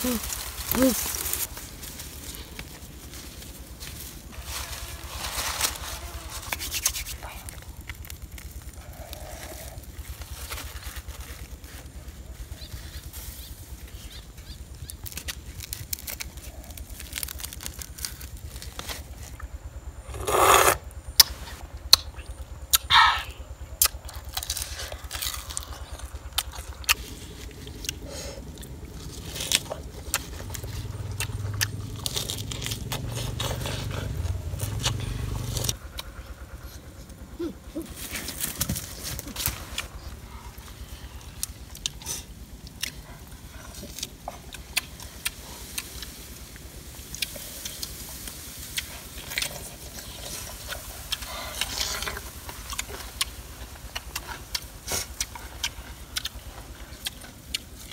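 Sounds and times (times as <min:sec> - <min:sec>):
chewing and lip-smacking: 0:23.8 - 0:36.5, 0:41.1 - 0:46.2, 0:48.7 - 0:57.9.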